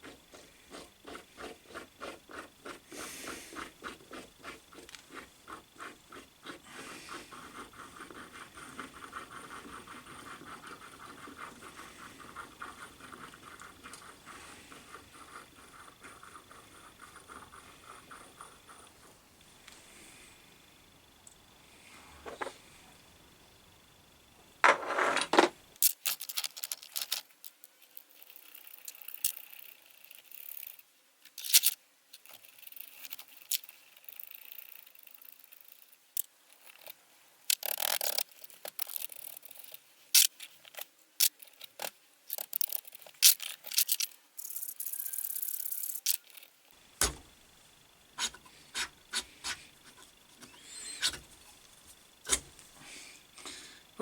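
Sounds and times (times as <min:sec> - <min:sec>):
metal parts clicking and knocking: 0:24.6 - 0:36.9, 0:37.5 - 0:47.3.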